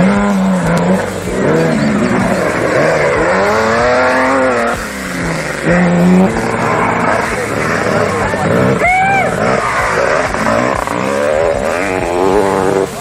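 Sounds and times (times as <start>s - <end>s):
race vehicle engine running loud: 0.0s - 13.0s.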